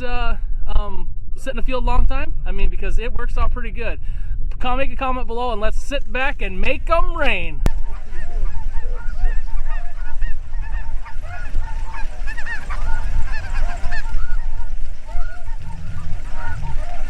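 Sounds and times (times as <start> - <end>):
steady low rumble: 0.0 - 17.0
flock of geese honking: 7.7 - 17.0.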